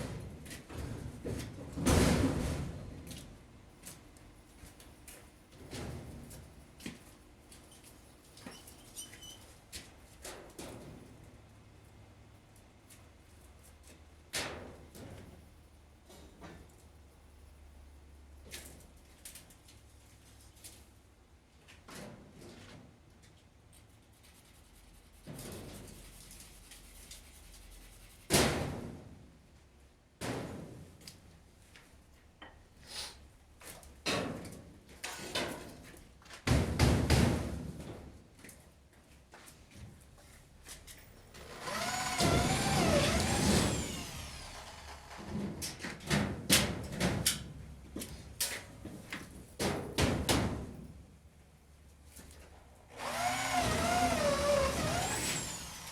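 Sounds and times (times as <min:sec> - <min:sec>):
scraping strokes on a surface: 0:23.8 - 0:28.3
motor whining: 0:41.4 - 0:45.3, 0:53.0 - 0:55.9.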